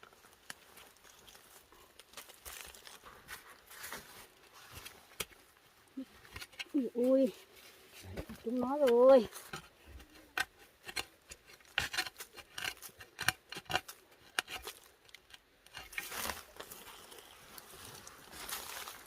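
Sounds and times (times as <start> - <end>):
rustling scrape: 2.5 - 5.1, 15.7 - 16.9
hand tool scraping soil: 6.2 - 19.0.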